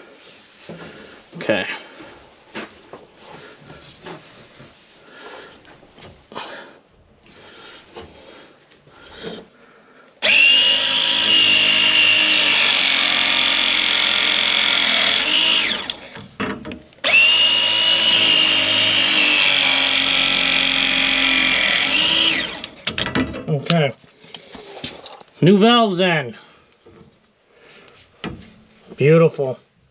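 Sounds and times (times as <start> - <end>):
power tool motor whining: 10.2 - 16.4, 17.0 - 22.9.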